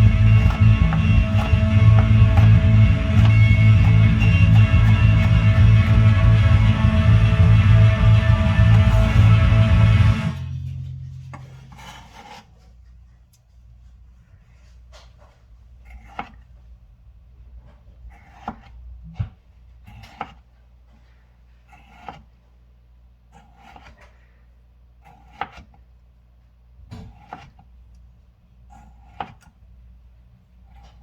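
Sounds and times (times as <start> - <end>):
low steady hum: 0.0 - 14.4
knife cutting vegetables on board: 0.3 - 5.0, 11.4 - 12.7, 15.8 - 16.5, 18.1 - 21.0, 21.6 - 22.4, 23.3 - 24.3, 25.0 - 25.8, 26.9 - 27.8, 28.7 - 29.6, 30.6 - 31.0.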